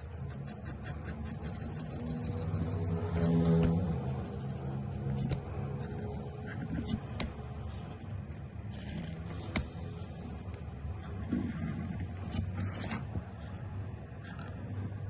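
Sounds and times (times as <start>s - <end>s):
marker scratching on paper: 0.0s - 5.4s.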